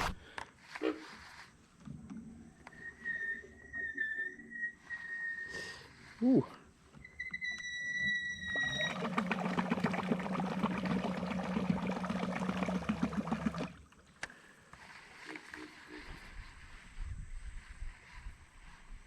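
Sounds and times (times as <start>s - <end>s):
high whistle-like tone: 2.6s - 6.0s, 7.0s - 9.0s
propeller churning water: 8.4s - 14.0s.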